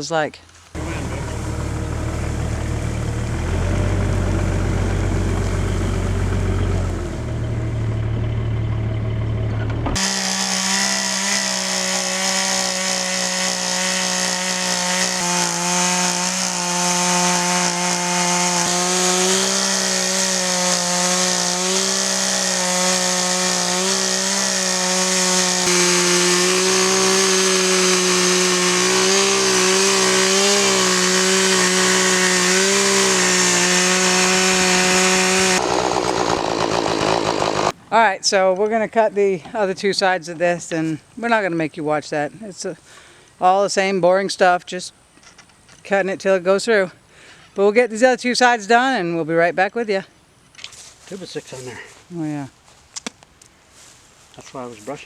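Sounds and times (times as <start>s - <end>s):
low rumble: 0.8s - 9.9s
chainsaw ripping a log: 9.9s - 37.8s.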